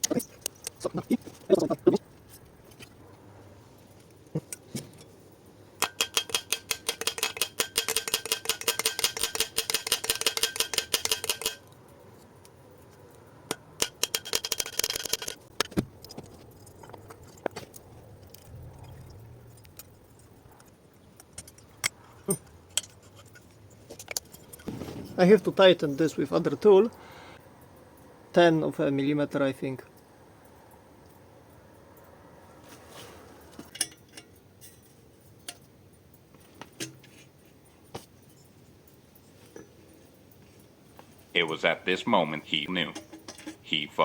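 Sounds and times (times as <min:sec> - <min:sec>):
metal parts clinking: 0:04.1 - 0:12.0, 0:13.0 - 0:17.4
ratchet tool clicking: 0:05.8 - 0:11.6.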